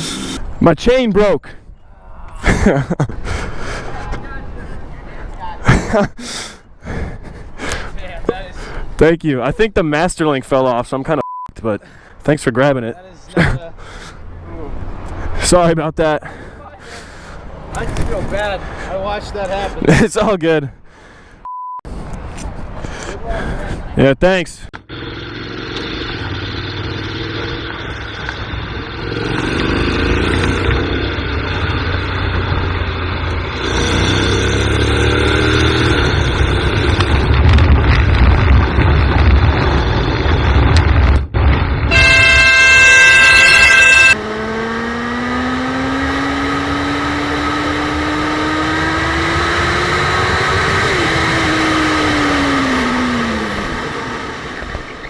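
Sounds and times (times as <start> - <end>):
road traffic: 0.0 - 55.0
engine speeding up: 24.8 - 41.0, 41.8 - 55.0
horn blaring: 41.9 - 44.4.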